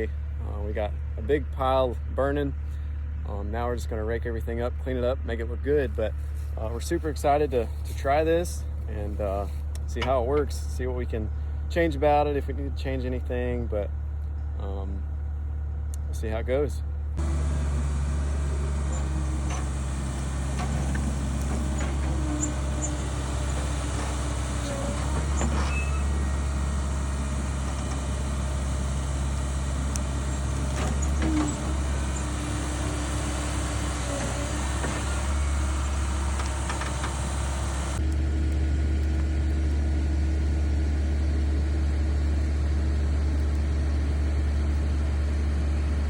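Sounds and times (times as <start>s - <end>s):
excavator diesel engine running: 16.9s - 46.0s.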